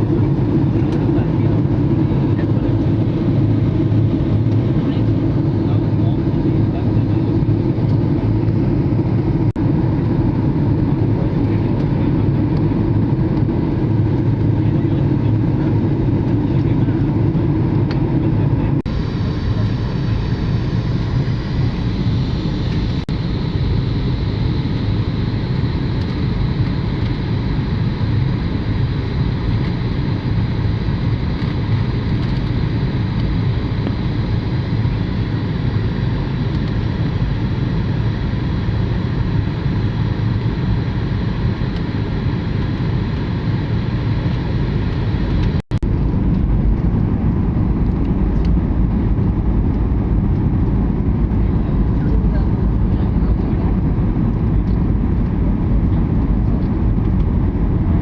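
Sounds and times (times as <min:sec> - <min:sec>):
rushing air in cabin: 0:00.0 - 0:27.8, 0:41.3 - 0:58.0
aeroplane engines roaring: 0:00.0 - 0:58.0.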